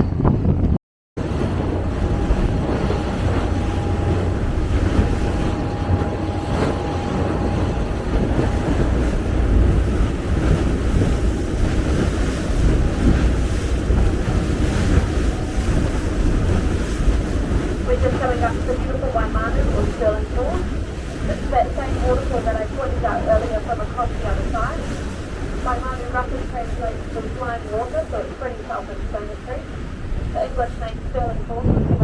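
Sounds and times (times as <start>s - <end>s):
boat engine low rumble: 0.0s - 32.0s
wind buffeting microphone: 0.0s - 32.0s
water washing: 1.2s - 32.0s.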